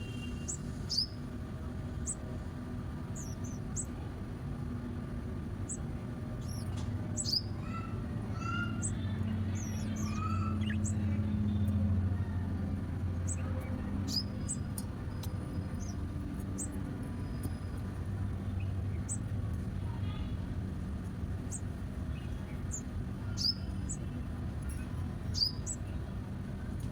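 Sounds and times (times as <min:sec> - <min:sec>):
low steady rumble: 0:00.0 - 0:26.9
small birds chirping: 0:00.0 - 0:26.9
lower gliding bird calls: 0:03.2 - 0:04.0, 0:06.4 - 0:12.6, 0:13.2 - 0:19.3, 0:21.5 - 0:26.0.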